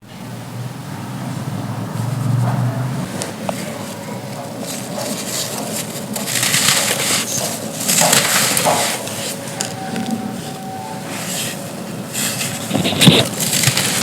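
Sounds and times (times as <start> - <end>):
dry sand chunks crunching: 3.2 - 14.0.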